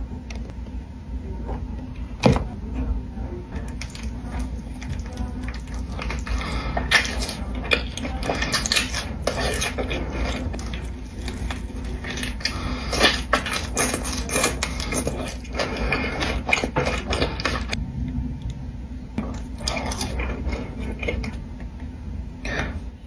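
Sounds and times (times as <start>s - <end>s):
chewing and crackling: 3.5s - 17.8s, 19.2s - 22.8s.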